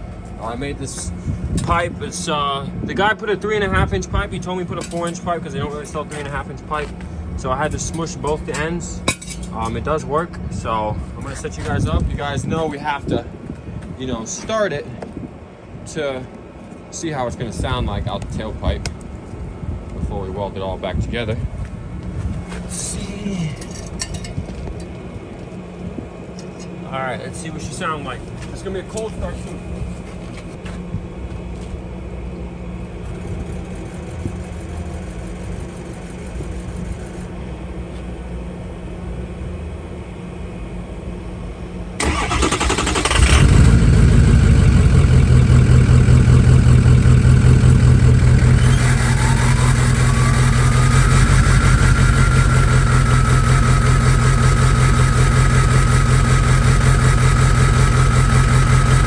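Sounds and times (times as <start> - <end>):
low steady hum: 0.0 - 59.0
diesel engine idling loudly: 33.0 - 37.3, 42.0 - 59.0
starter cranking: 42.0 - 59.0
turbo whistle: 48.6 - 50.6.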